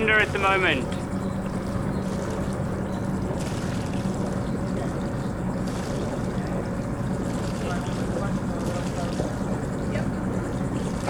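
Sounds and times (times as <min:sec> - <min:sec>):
boat engine humming: 0:00.0 - 0:11.0
water around hull: 0:00.0 - 0:11.0.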